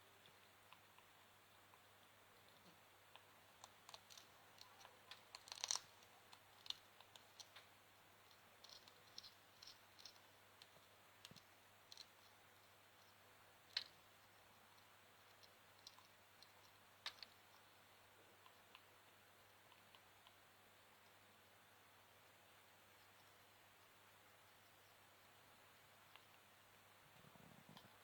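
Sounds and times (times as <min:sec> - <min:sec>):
parrot crunching carrot: 0:05.1 - 0:07.7.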